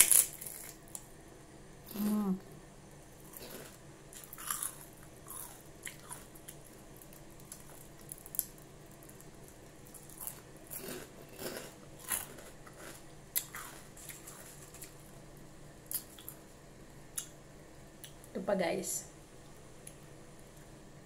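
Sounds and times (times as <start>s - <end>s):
crunchy food being chewed: 0.0s - 1.1s, 3.2s - 15.2s, 15.9s - 16.4s.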